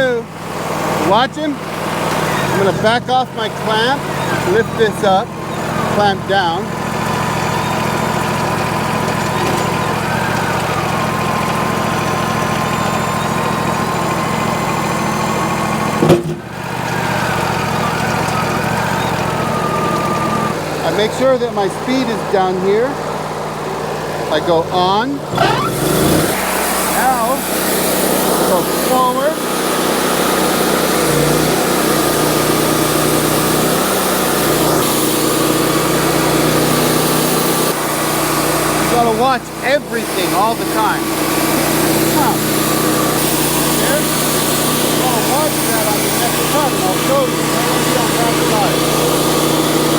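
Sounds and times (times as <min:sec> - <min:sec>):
sawmill engine running: 0:00.0 - 0:49.9
faint hydraulic whine: 0:00.9 - 0:49.9
band blade cutting log: 0:25.3 - 0:49.9.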